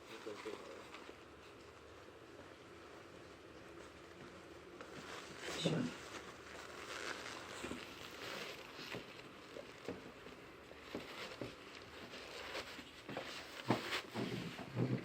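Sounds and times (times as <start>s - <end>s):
folding chair knocks and clicks: 13.6s - 15.0s.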